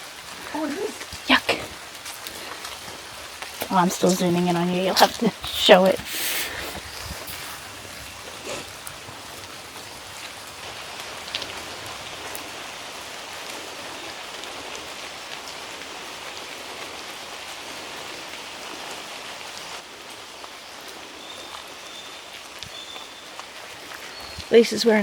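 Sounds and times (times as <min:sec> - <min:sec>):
rain on foliage: 0:00.0 - 0:25.0
drips ticking: 0:00.4 - 0:12.5.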